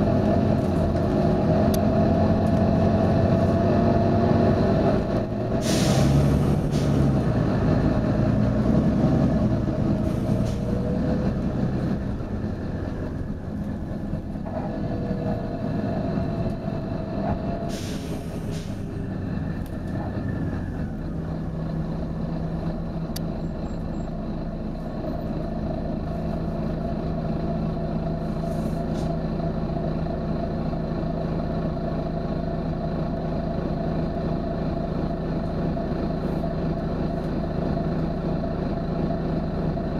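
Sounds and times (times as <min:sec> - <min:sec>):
bus diesel engine running: 0:00.0 - 0:39.9
compressed air hissing: 0:05.6 - 0:07.0, 0:17.7 - 0:18.9.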